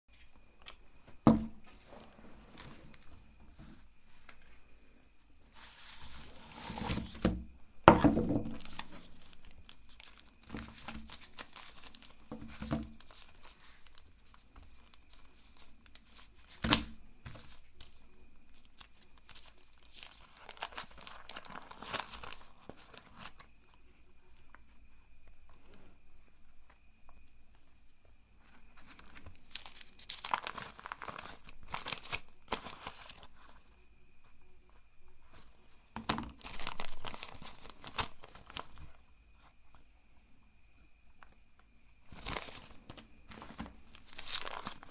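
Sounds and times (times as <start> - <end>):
plastic wrappers crinkling and tearing: 8.3 - 23.5, 28.8 - 33.6, 36.3 - 38.9, 42.1 - 44.9.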